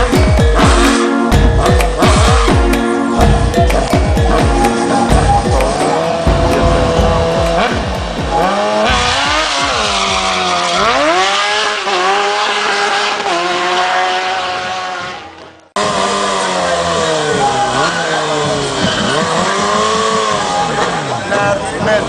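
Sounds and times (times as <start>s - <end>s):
music with a beat: 0.0s - 11.1s
car engine revving: 0.0s - 22.0s.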